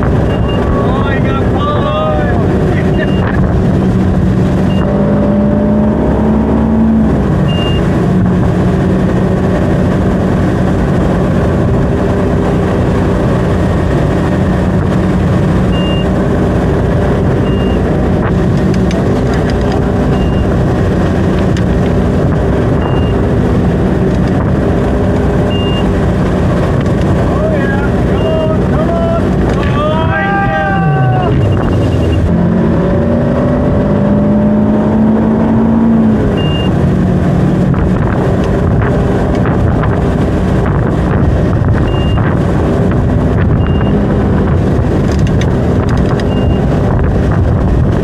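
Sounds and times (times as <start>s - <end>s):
boat engine running under load: 0.0s - 48.0s
short high beeps: 0.2s - 0.8s, 2.8s - 3.4s, 4.7s - 4.9s, 7.5s - 7.9s, 15.7s - 16.1s, 17.4s - 17.9s, 20.1s - 20.5s, 22.8s - 23.2s, 25.5s - 25.9s, 31.3s - 32.3s, 36.4s - 36.7s, 41.8s - 42.2s, 43.6s - 44.0s, 46.2s - 46.7s.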